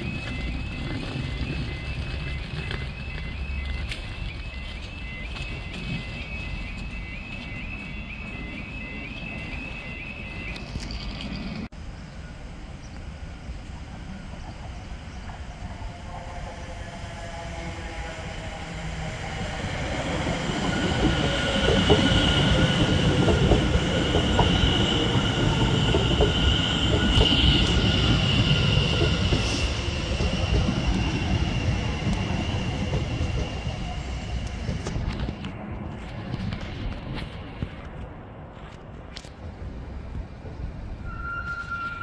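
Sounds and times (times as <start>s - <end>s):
wheels clicking over crossing rails: 0.0s - 11.7s, 18.5s - 38.1s
passing train rumble: 0.0s - 42.0s.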